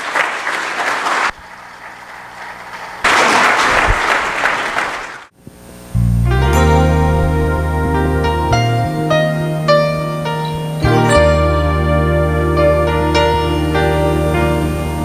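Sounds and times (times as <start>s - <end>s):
congregation applauding: 0.0s - 5.3s
keyboard music with heavy bass: 6.1s - 15.0s.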